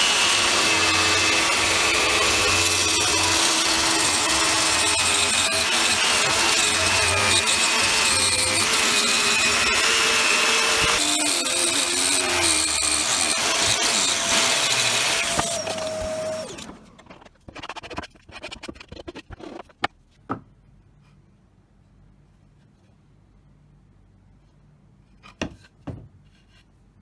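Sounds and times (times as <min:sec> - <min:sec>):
power tool whining: 0:00.0 - 0:17.3.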